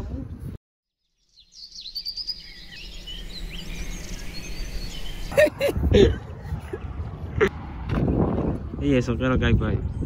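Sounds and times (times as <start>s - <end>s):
birds chirping and calling: 1.2s - 5.9s.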